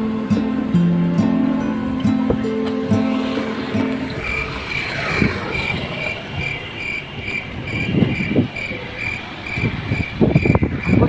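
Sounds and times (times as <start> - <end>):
guitar music: 0.0 - 5.7.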